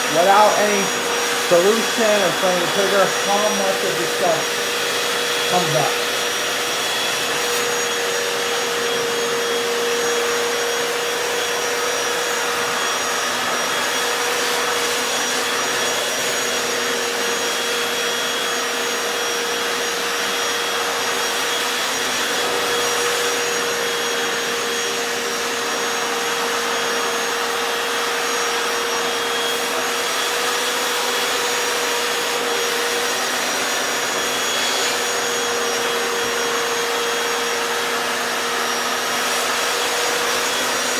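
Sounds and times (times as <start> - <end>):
steady whine: 0.0 - 6.2
floor cleaner motor running: 0.0 - 40.9.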